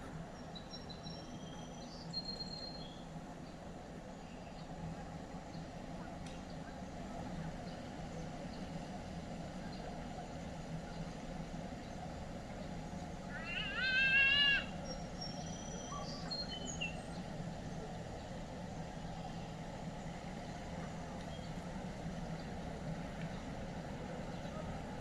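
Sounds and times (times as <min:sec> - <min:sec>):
distant vehicle traffic hum: 0:00.0 - 0:25.0
faint high bird chirps: 0:00.3 - 0:03.1, 0:13.2 - 0:17.3.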